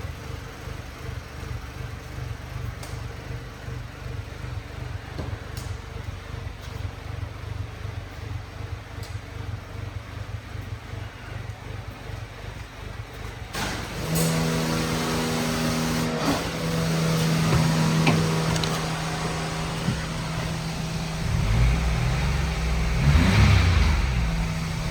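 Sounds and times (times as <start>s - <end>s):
car engine idling and revving: 0.0s - 24.9s.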